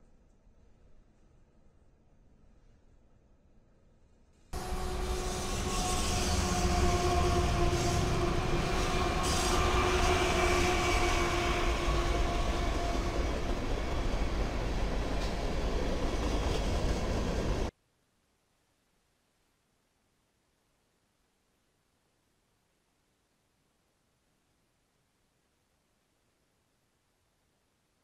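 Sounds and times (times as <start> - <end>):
steady whine: 4.6 - 15.8
diesel locomotive engine rumble: 4.6 - 17.7
rolling train wheels: 4.6 - 17.7.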